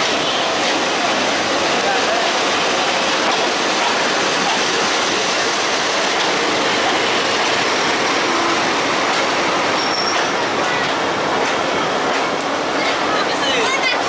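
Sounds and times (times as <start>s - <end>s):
train wheels rushing on rails: 0.0s - 14.0s.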